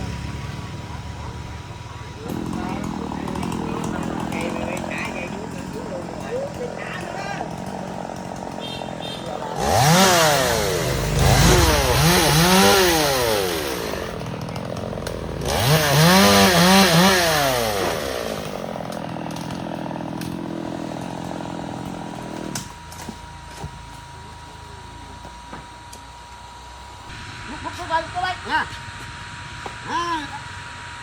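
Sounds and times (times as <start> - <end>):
chainsaw engine revving: 0.0 - 23.1.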